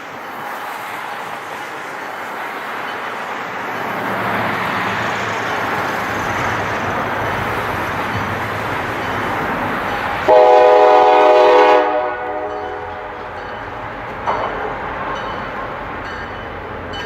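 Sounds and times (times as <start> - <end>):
rushing vehicle noise: 0.2 - 11.0.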